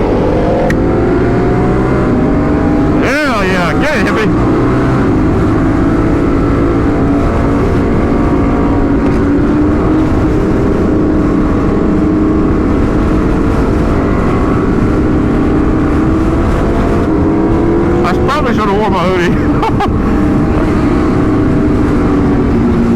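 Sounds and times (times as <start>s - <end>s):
motorcycle engine cruising: 0.0s - 22.9s
wind rumble on microphone: 0.0s - 22.9s.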